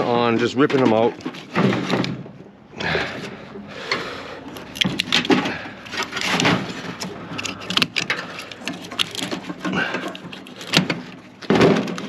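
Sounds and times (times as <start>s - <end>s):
metal parts knocking and clanking: 0.0s - 2.4s, 3.9s - 12.0s.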